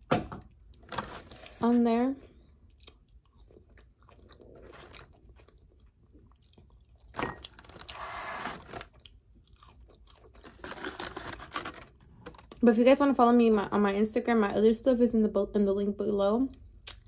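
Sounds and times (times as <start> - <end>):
person chewing crispy food: 2.4 - 12.6.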